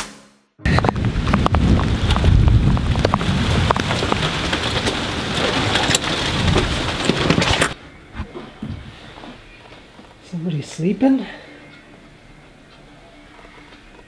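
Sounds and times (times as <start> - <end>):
heavy rain with drop hits: 0.7 - 7.8
low rumble: 0.7 - 9.1.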